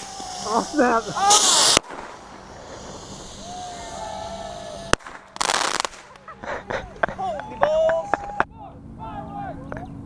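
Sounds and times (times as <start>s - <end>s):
fireworks hissing burst: 0.0s - 7.0s
firework sharp crack: 0.0s - 7.2s.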